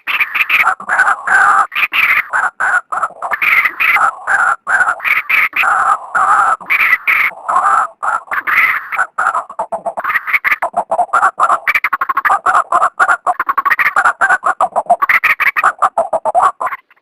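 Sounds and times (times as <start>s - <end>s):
bird harsh rapid calling: 0.0s - 17.0s.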